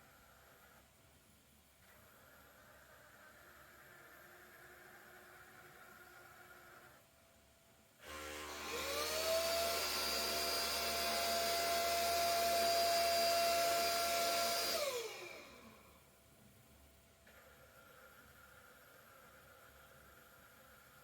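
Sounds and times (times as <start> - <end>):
vacuum cleaner motor running: 8.0 - 16.0.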